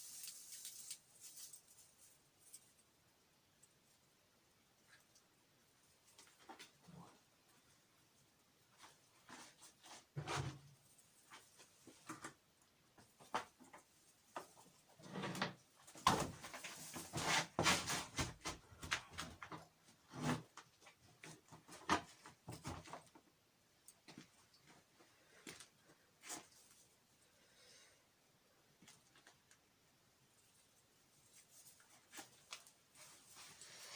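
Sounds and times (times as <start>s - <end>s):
chair and objects knocking and scraping: 8.8s - 12.4s, 13.0s - 23.2s.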